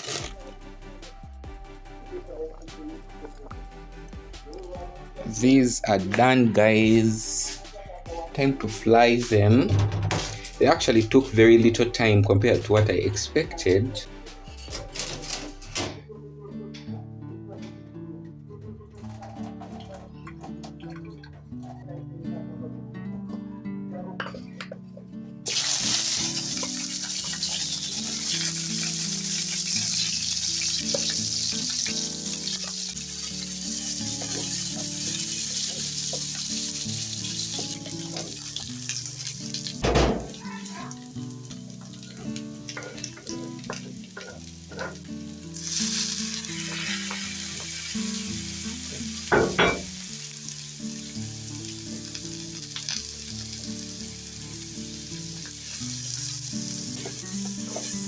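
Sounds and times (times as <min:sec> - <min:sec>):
food sizzling in hot oil: 0:00.0 - 0:00.4, 0:25.5 - 0:58.0
soft music: 0:00.0 - 0:58.0.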